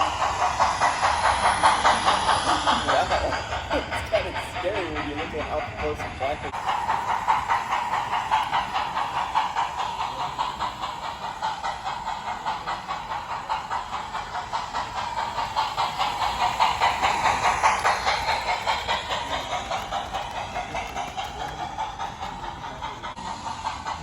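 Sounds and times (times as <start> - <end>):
model train motor whine: 0.0 - 4.4
rapid clicks on track: 0.0 - 24.0.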